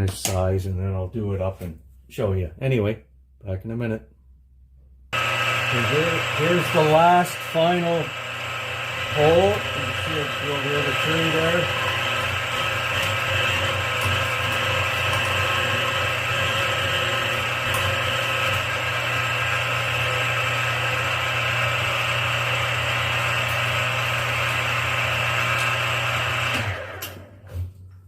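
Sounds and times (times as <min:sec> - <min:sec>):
drilling machine drilling steel: 0:05.2 - 0:27.3.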